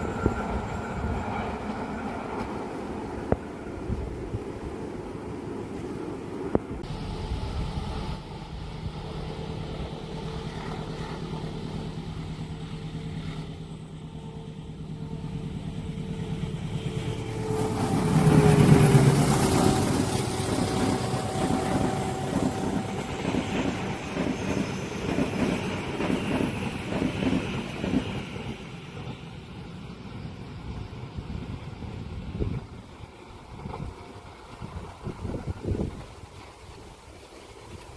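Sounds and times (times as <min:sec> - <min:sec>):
locomotive engine hum: 0:00.0 - 0:37.9.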